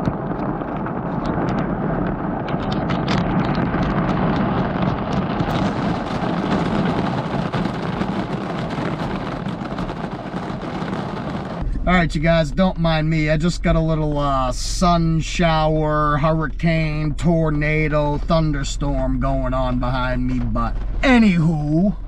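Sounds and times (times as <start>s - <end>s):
raindrops ticking close by: 0.0s - 11.6s
heavy rain: 0.0s - 12.2s
wind buffeting microphone: 0.0s - 22.0s.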